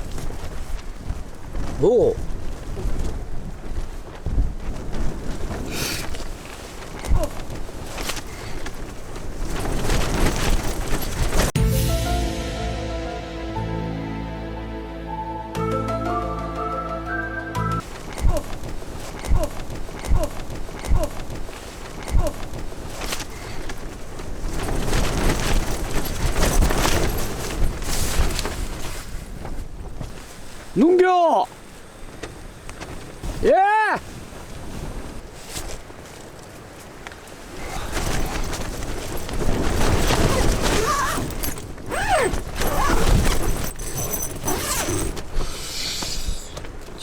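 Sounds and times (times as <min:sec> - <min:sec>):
strong wind buffeting: 0:00.0 - 0:11.6
tent fabric flapping: 0:00.0 - 0:12.5, 0:16.6 - 0:47.0.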